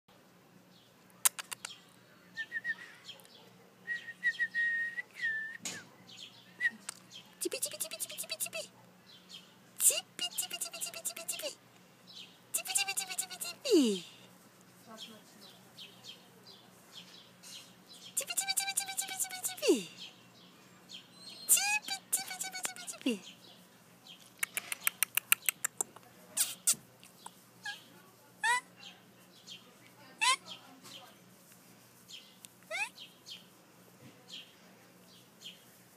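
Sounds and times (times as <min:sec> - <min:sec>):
quick clicks: 0:01.2 - 0:01.8, 0:24.3 - 0:26.6
puppies squeaking and whimpering: 0:21.1 - 0:23.0, 0:32.7 - 0:33.0.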